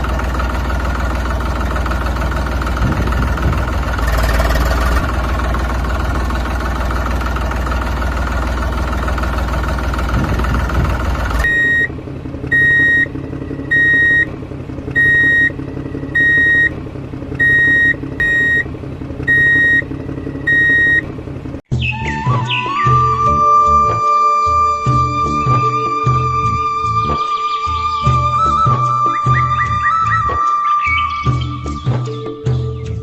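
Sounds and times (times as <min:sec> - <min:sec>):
electronic beeper: 0:11.4 - 0:11.9, 0:12.5 - 0:14.3, 0:17.4 - 0:18.6
music: 0:21.7 - 0:33.0.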